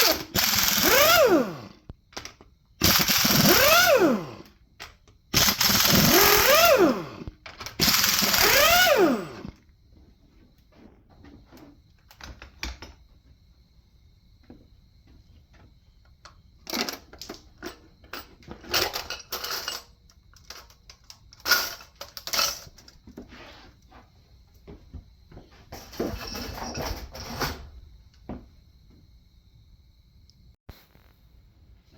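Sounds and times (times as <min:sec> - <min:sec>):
metal tools clinking and clattering: 0:16.7 - 0:23.0, 0:25.8 - 0:27.7.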